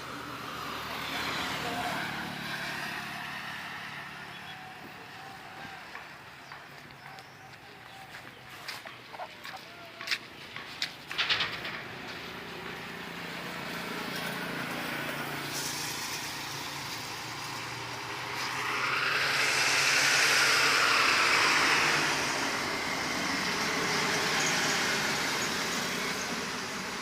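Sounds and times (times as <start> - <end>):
vehicle engine running: 0.0 - 27.0
vehicle passing: 0.0 - 27.0.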